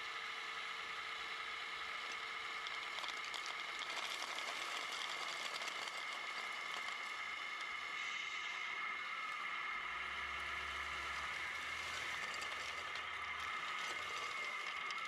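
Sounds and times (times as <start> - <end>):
model truck electric whine: 0.0 - 15.0
small clicks and rattles: 2.0 - 7.9.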